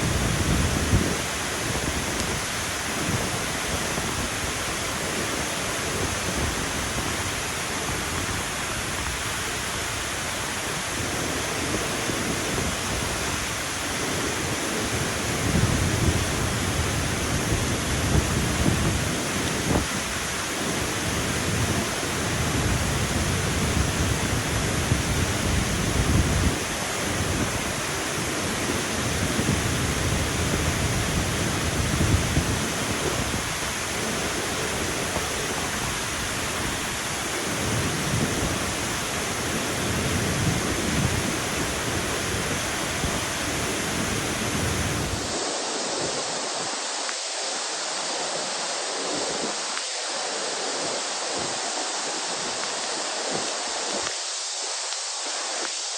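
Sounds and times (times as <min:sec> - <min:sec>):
waterfall roaring: 0:00.0 - 0:55.9.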